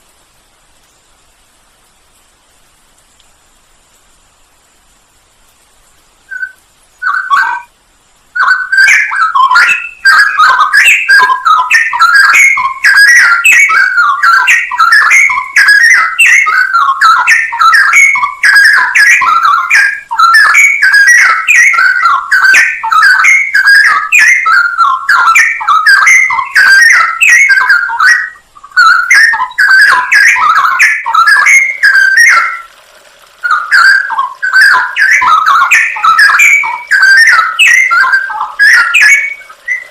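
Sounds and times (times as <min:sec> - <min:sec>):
bird singing chirping notes: 0:06.3 - 0:07.7, 0:08.3 - 0:32.8, 0:33.4 - 0:39.9.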